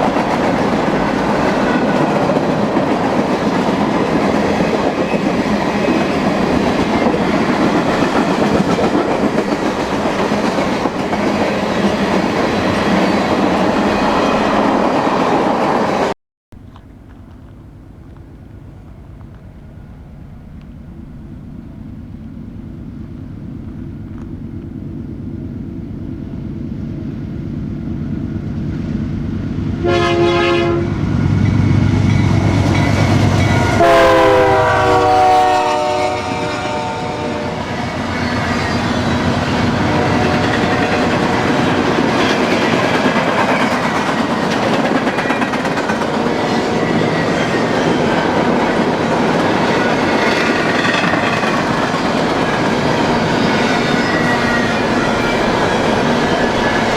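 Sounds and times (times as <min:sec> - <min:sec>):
locomotive engine rumble: 0:16.6 - 0:29.8, 0:45.9 - 0:56.9
train horn blasts: 0:29.8 - 0:31.2, 0:32.7 - 0:38.0, 0:39.6 - 0:41.6, 0:54.0 - 0:56.9.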